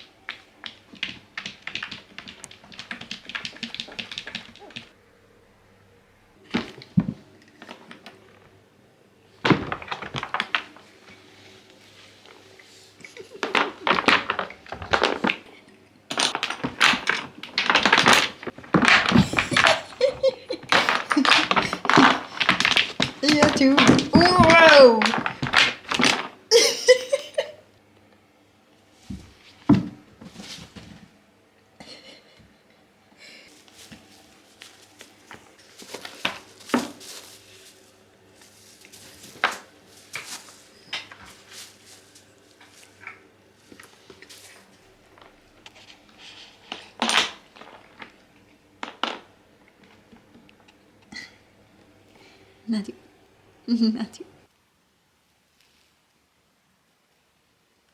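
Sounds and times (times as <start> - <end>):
cats playing with knocks and scrapes: 0.0 - 5.0, 6.4 - 8.6, 9.3 - 27.5, 28.8 - 31.2, 33.5 - 51.3.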